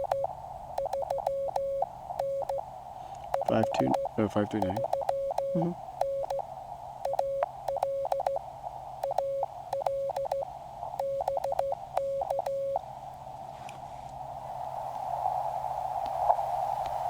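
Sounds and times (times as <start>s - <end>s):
morse code tone: 0.0s - 2.6s, 3.4s - 6.4s, 7.1s - 8.4s, 9.0s - 10.4s, 11.0s - 12.8s.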